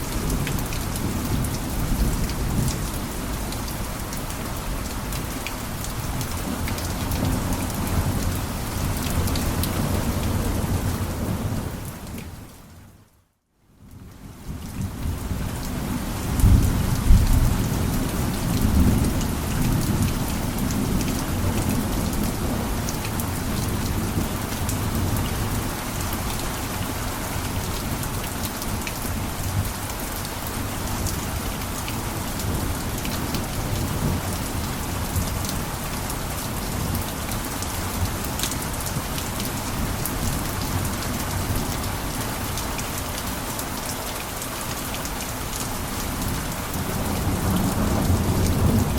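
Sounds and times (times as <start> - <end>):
heavy rain on a roof: 0.0 - 48.9.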